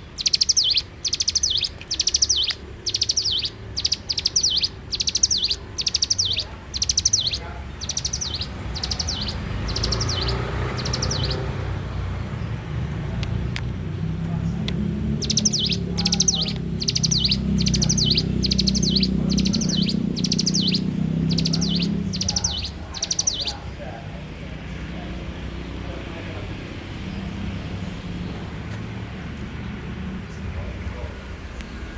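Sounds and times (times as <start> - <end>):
bird singing high chirps: 0.0 - 11.6, 14.3 - 23.8
steady low rumble: 0.0 - 31.9.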